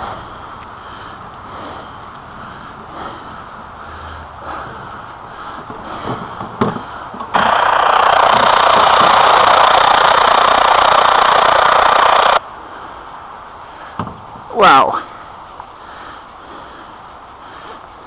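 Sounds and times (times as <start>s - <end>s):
radio scanner static hiss: 7.4s - 12.4s.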